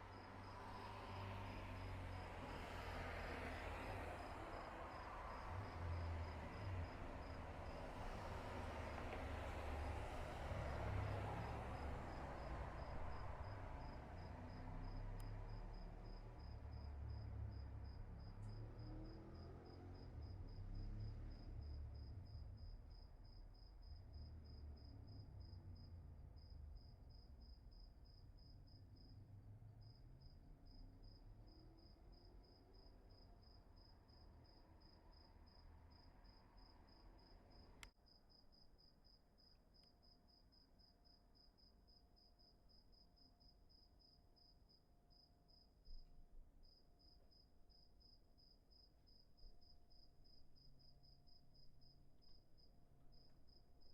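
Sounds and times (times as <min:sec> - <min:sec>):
cricket chirping: 0:00.0 - 0:53.9.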